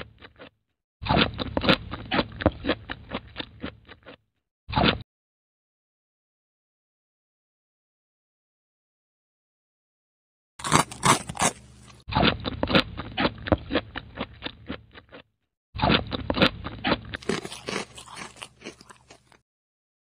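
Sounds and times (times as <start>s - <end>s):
crunchy chewing: 0.0s - 5.0s, 10.6s - 19.4s.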